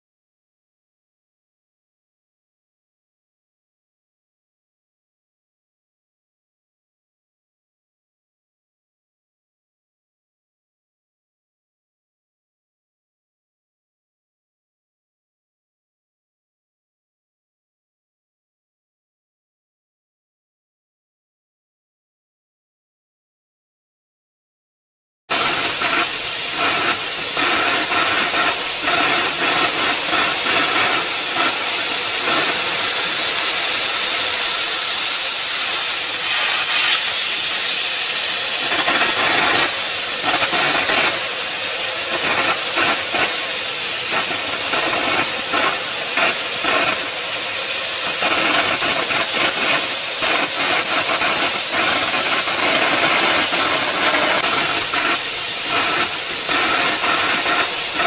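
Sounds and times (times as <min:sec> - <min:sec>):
cutting torch jet hissing: 0:25.3 - 0:58.0.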